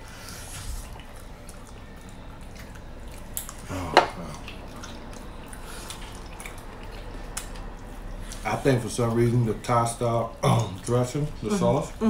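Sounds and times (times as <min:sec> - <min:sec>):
wet chewing and lip-smacking: 0:00.0 - 0:12.0.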